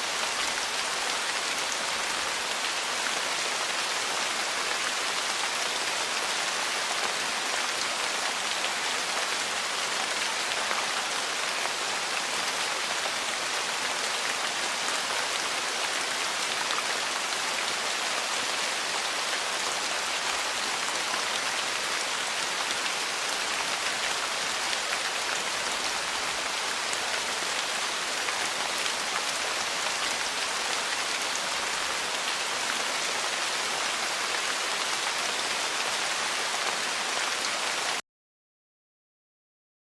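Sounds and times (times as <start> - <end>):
rain falling on a porch: 0.0 - 38.0.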